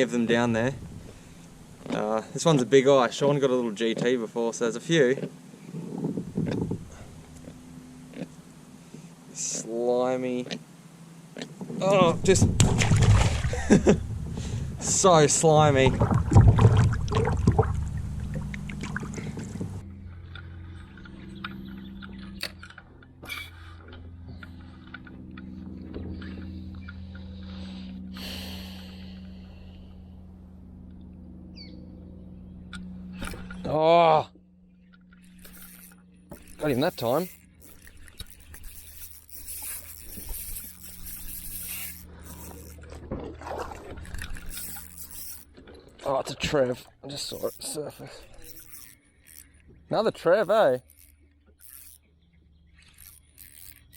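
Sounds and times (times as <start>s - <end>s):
steady low hum: 0.0s - 53.9s
light clicks and knocks on kayak: 0.3s - 9.5s, 11.3s - 27.2s
fishing reel rasping: 20.6s - 25.6s, 26.2s - 30.0s, 35.0s - 43.0s, 43.6s - 46.0s, 46.8s - 53.9s.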